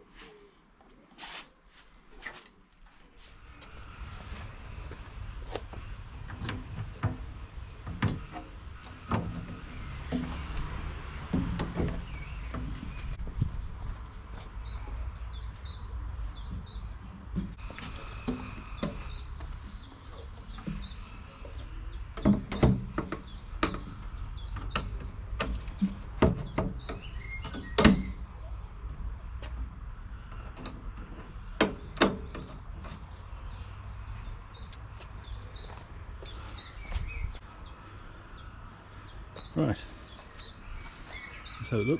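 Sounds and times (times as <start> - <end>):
sharp knocks and clicks: 5.5 - 13.2, 16.4 - 28.3, 30.3 - 33.0.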